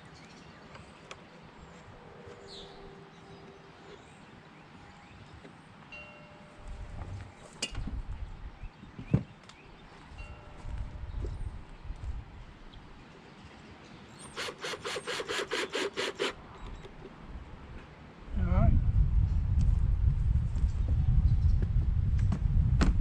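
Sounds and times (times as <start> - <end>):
wind gusting on microphone: 6.6 - 13.1, 16.3 - 23.0.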